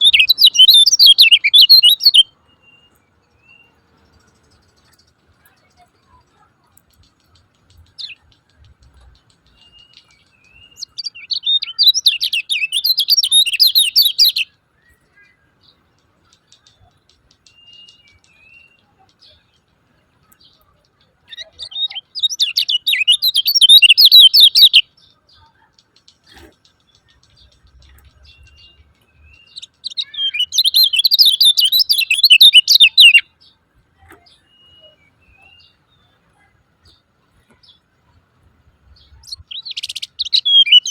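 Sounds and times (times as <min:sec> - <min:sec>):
bird chattering: 0:00.0 - 0:02.2, 0:04.1 - 0:14.4, 0:21.3 - 0:33.4, 0:39.0 - 0:40.9.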